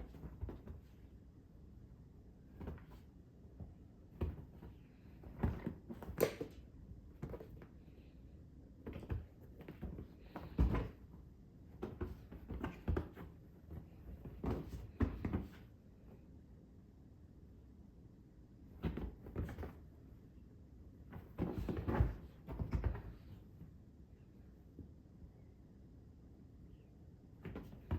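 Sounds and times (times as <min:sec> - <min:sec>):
cat thumping and scuffing on floor: 0:00.0 - 0:01.0, 0:02.5 - 0:03.1, 0:04.1 - 0:06.6, 0:11.7 - 0:15.7, 0:21.1 - 0:23.4.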